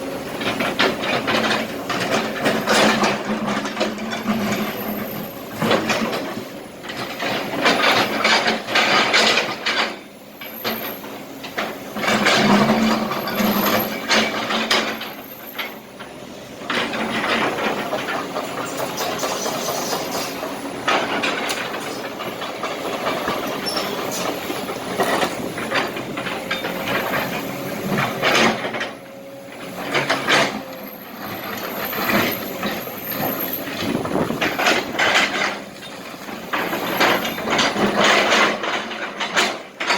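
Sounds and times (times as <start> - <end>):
excavator diesel engine: 0.0 - 39.9
bucket scraping and rattling rocks: 31.7 - 39.9.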